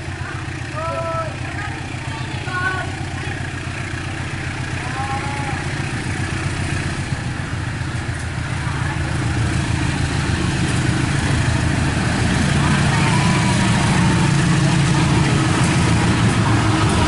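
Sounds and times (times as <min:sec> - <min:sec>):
diesel locomotive engine rumbling: 0:00.0 - 0:17.0.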